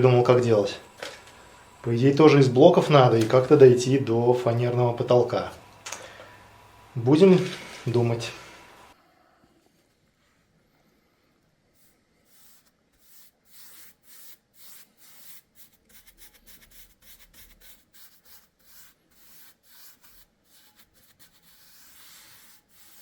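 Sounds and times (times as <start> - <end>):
rubbing strokes on rough surface: 11.8 - 23.0.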